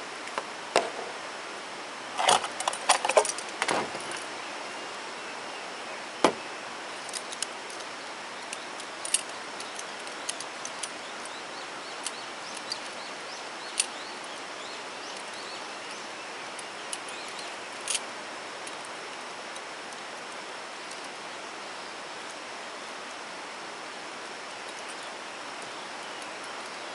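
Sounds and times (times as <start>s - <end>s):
steady outdoor hiss: 0.0s - 26.9s
louder knock: 6.2s - 6.4s.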